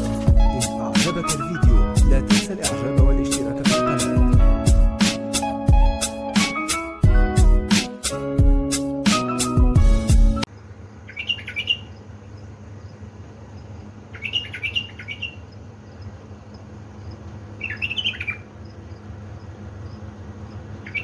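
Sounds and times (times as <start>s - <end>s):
low steady hum: 10.4s - 21.0s
bird singing quick notes: 11.0s - 12.0s, 14.1s - 15.4s, 17.6s - 18.5s.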